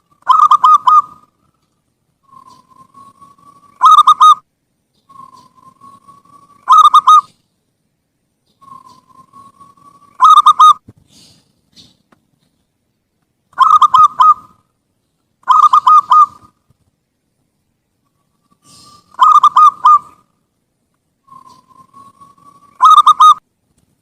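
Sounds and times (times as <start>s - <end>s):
dove cooing: 0.0s - 1.3s, 2.2s - 4.4s, 5.1s - 7.4s, 8.6s - 11.9s, 13.6s - 14.6s, 15.4s - 16.6s, 18.4s - 20.3s, 21.3s - 23.4s.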